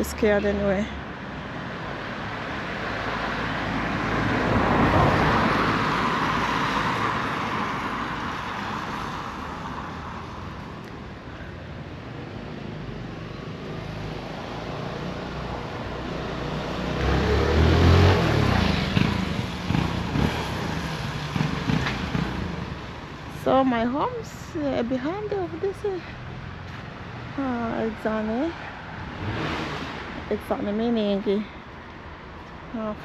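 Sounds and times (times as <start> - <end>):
vehicle approaching: 0.0 - 31.5
car passing on wet street: 1.3 - 10.9, 12.4 - 23.3, 28.3 - 30.3.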